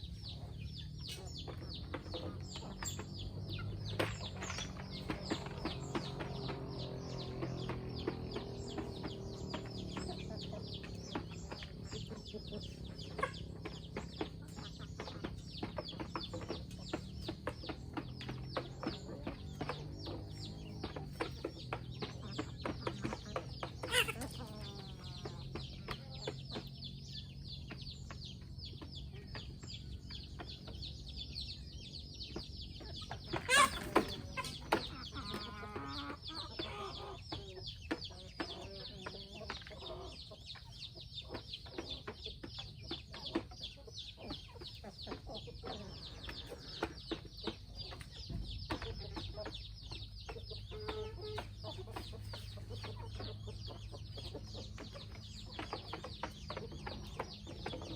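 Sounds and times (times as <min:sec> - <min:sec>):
chickens clucking: 0:00.0 - 0:57.9
chicken squawks: 0:23.8 - 0:24.5, 0:33.3 - 0:37.2.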